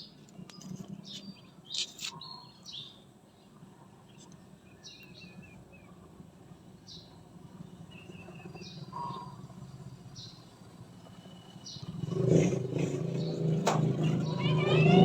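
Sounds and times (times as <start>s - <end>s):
bird chirping: 0.0s - 6.1s, 6.8s - 15.0s
low engine hum: 3.6s - 15.0s
vehicle engine approaching: 5.2s - 15.0s.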